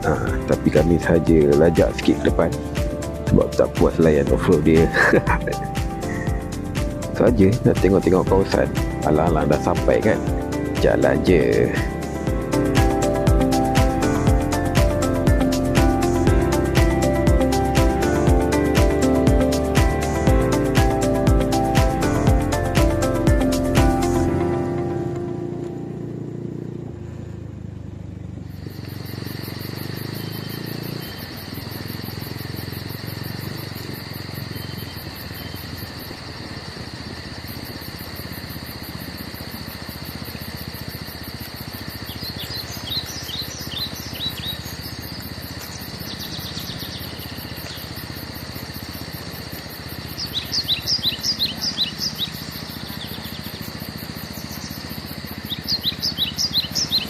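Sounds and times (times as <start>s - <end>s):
insects droning: 0.0s - 57.0s
bird chirping: 28.7s - 35.8s, 41.8s - 48.0s, 49.9s - 57.0s.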